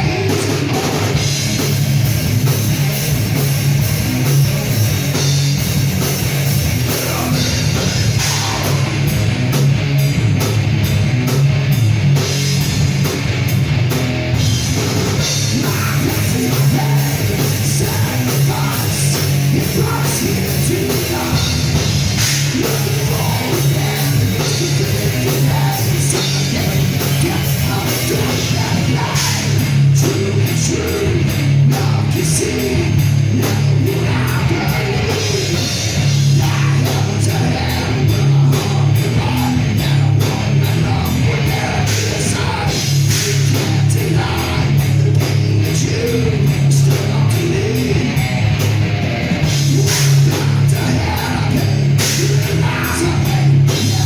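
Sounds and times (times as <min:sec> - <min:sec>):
distorted electric guitar: 0:00.0 - 0:54.0
drum kit: 0:00.0 - 0:54.0
person singing: 0:15.2 - 0:21.8, 0:22.4 - 0:48.4, 0:49.4 - 0:54.0.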